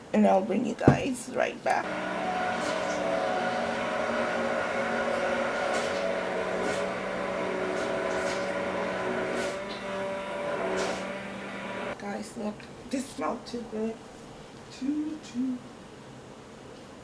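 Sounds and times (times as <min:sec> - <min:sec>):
microwave oven humming: 0:01.8 - 0:12.0.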